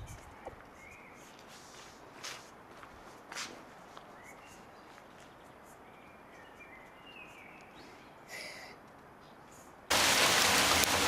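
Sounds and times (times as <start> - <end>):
faint bird chirps: 0.0 - 1.4, 4.1 - 9.7
brief scuffing noise: 1.2 - 2.6, 3.3 - 4.0.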